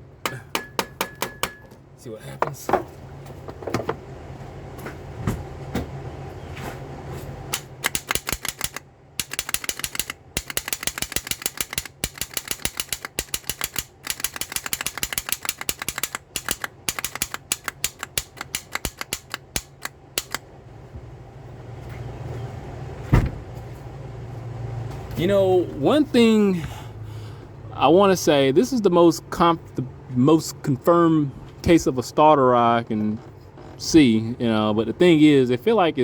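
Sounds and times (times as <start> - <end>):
starter solenoid clicking rapidly: 7.5 - 20.4.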